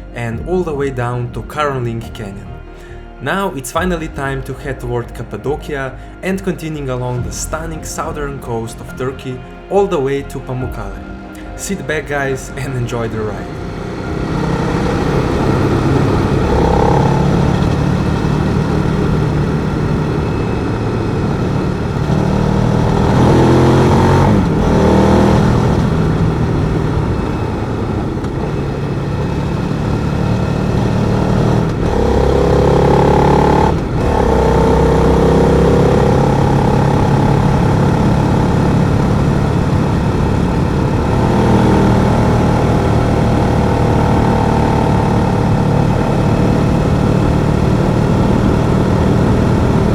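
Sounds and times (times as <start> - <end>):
motorcycle engine revving: 12.9 - 49.9.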